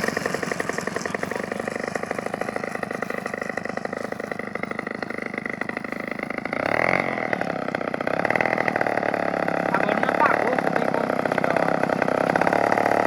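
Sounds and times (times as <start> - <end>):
model airplane engine: 0.0 - 13.0.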